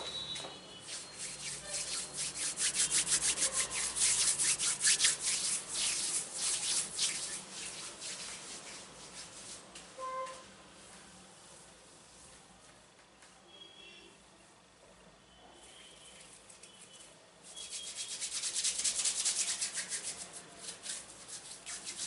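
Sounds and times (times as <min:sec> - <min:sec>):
quick rubbing strokes: 0:00.7 - 0:09.7, 0:16.3 - 0:22.0.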